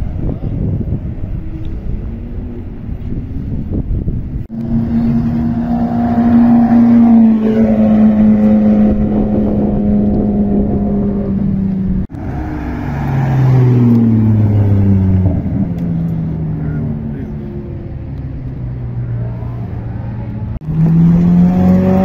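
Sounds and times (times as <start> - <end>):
sports car engine revving: 4.5 - 22.0.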